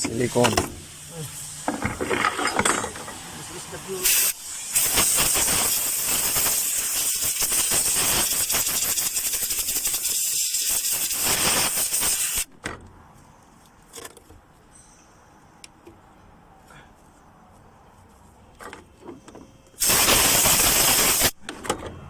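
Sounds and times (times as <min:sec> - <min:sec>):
gas hissing from a nozzle: 0:00.2 - 0:01.8, 0:03.2 - 0:12.5, 0:19.8 - 0:21.4.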